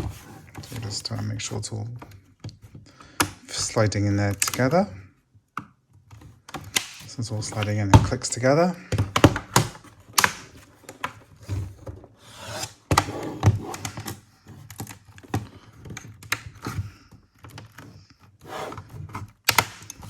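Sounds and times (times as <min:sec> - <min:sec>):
plastic rubbing: 0:00.0 - 0:02.9, 0:06.0 - 0:20.0
plastic clips snapping into place: 0:06.5 - 0:07.7, 0:09.2 - 0:11.2, 0:19.4 - 0:20.0.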